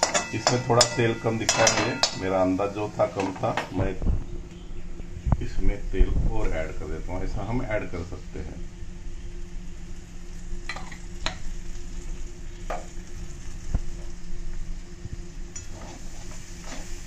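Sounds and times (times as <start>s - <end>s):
steady low hum: 0.0s - 17.0s
vegetables sizzling in oil: 9.4s - 17.0s.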